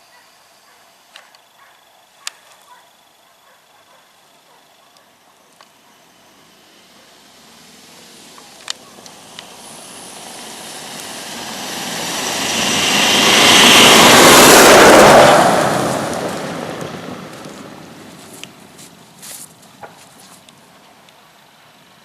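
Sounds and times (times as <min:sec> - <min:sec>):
vehicle passing by: 0:05.7 - 0:20.8.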